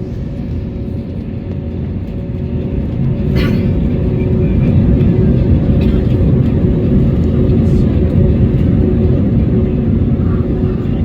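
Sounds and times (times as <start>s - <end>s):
airliner cabin rumble: 0.0s - 11.0s
faint engine hum: 0.0s - 11.0s.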